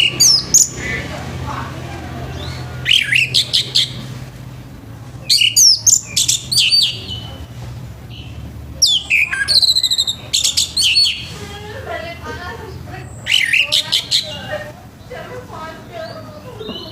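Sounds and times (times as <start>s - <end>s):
thrush singing whistled phrases: 0.0s - 1.2s, 2.2s - 4.1s, 5.2s - 7.5s, 8.1s - 11.5s, 13.0s - 15.1s.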